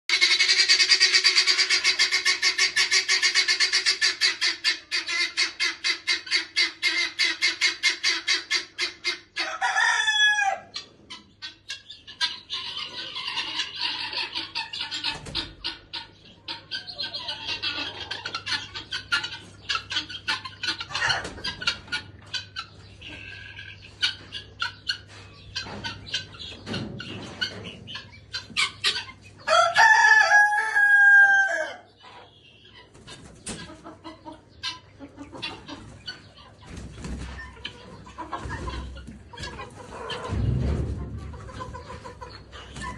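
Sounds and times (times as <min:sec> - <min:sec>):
chickens clucking: 0:00.0 - 0:42.9
rooster crowing: 0:09.4 - 0:10.7, 0:29.5 - 0:31.9.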